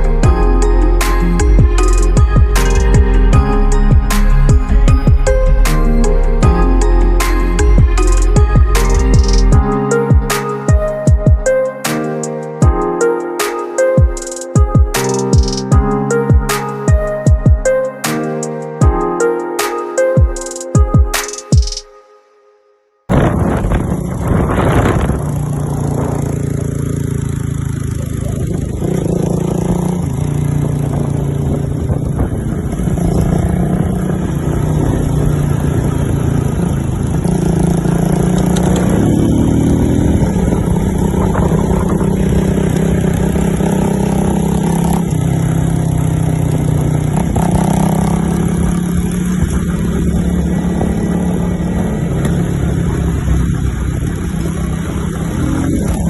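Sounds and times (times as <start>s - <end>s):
motorcycle engine running: 1.2s - 11.5s, 23.1s - 56.0s.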